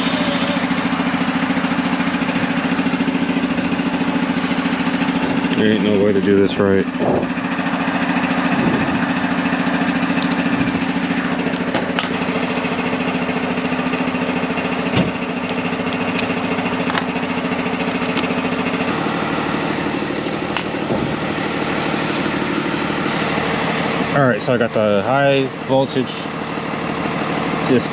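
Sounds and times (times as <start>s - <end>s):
engine idling: 0.0s - 27.9s.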